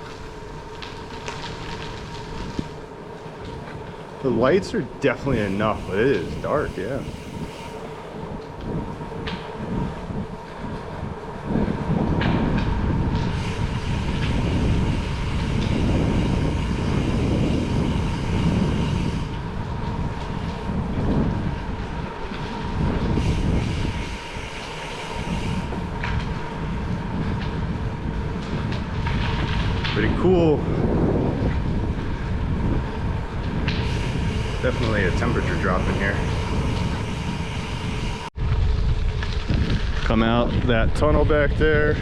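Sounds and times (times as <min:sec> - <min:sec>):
bicycle tyres rumbling: 0:00.0 - 0:42.0
hiss: 0:05.3 - 0:08.0, 0:33.7 - 0:38.3.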